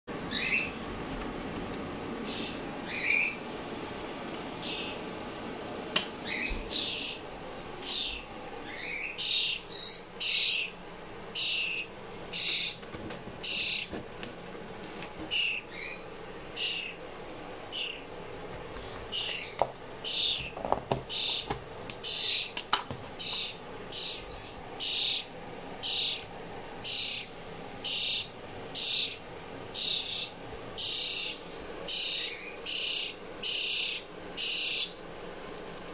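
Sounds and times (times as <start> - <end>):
fledgling bird begging calls: 7.8 - 12.8, 15.3 - 17.0, 17.7 - 18.1, 19.1 - 22.6, 23.2 - 35.0.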